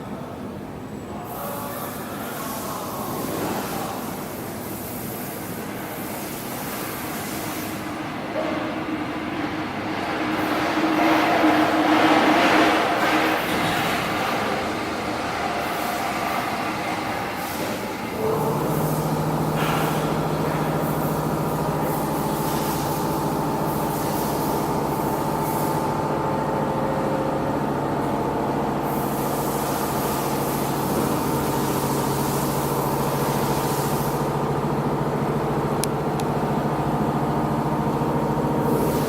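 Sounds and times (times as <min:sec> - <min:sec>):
hiss: 0:01.3 - 0:08.0, 0:13.4 - 0:25.9, 0:28.8 - 0:34.4, 0:38.6 - 0:39.0
diesel generator engine hum: 0:13.0 - 0:39.0.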